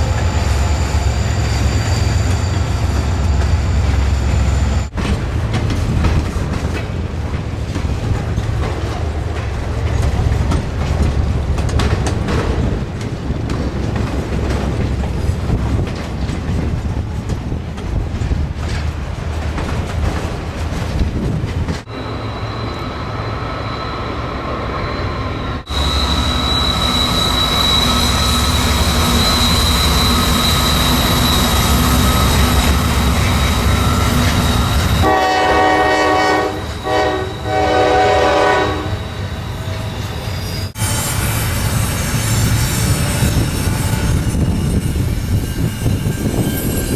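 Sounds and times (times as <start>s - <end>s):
high-pitched wheel squeal: 0.0s - 4.9s, 21.9s - 46.9s
train wheels rumbling on rail: 0.0s - 46.9s.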